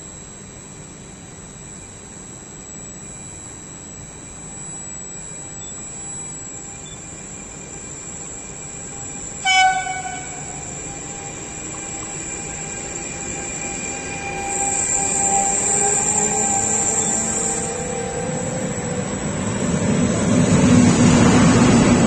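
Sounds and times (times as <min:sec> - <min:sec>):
steady train whine: 0:00.0 - 0:22.0
freight train running: 0:05.7 - 0:22.0
locomotive horn blast: 0:09.4 - 0:10.9.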